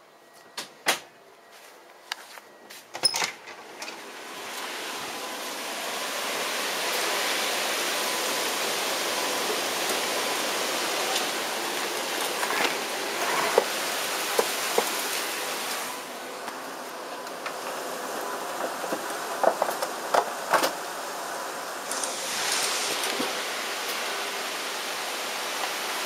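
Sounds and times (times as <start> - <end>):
heavy rain rushing: 4.0 - 16.2, 18.4 - 26.0.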